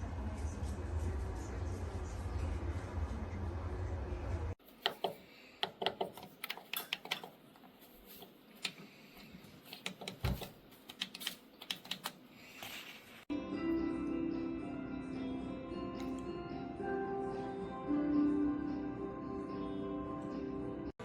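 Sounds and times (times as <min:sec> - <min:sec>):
music: 0:13.3 - 0:21.0.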